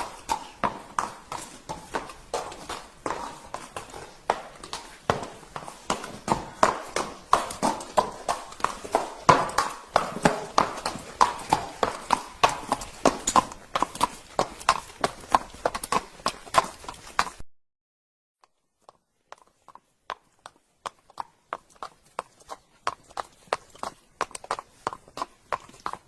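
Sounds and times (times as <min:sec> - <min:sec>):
horse hooves clip-clopping: 0:00.0 - 0:17.4, 0:18.4 - 0:26.0.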